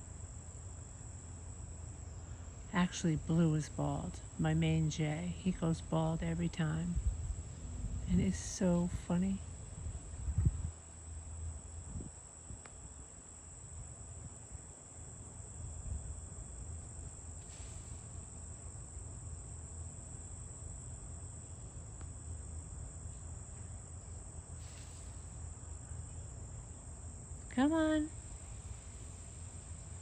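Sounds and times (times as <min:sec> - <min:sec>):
crickets chirring: 0:00.0 - 0:30.0
low wind rumble: 0:05.0 - 0:13.2.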